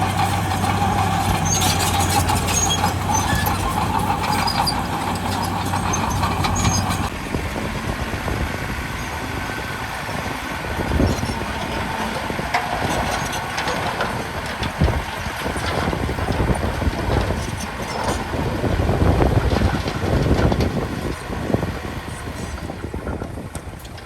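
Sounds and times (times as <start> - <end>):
metal clanks and knocks: 0.0 - 7.1, 11.0 - 18.4
heavy diesel machinery running: 0.0 - 24.0.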